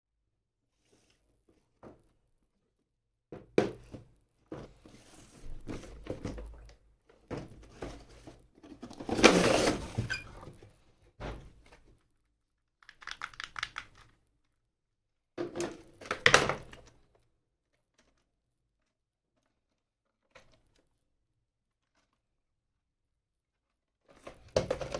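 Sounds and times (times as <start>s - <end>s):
plastic and box crinkling: 21.7s - 22.4s.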